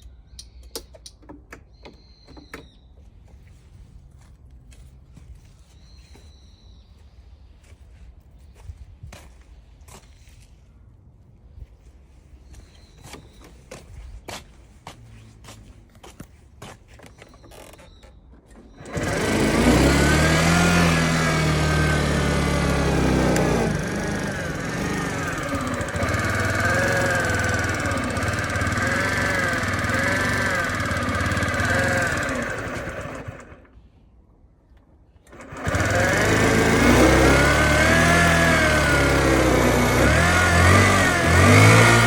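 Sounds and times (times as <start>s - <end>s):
scooter engine running: 18.8s - 33.8s, 35.3s - 42.0s.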